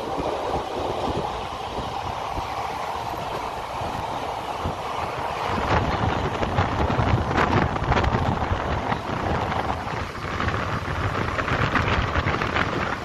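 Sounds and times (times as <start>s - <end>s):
train rumbling on rails: 0.0s - 13.0s
wind rushing over microphone: 0.0s - 13.0s.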